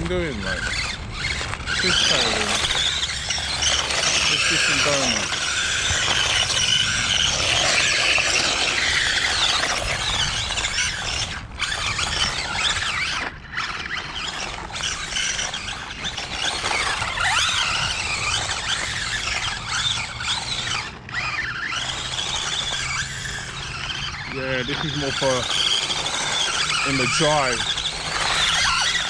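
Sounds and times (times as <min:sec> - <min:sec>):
electric toy truck motor whining: 0:00.0 - 0:29.0.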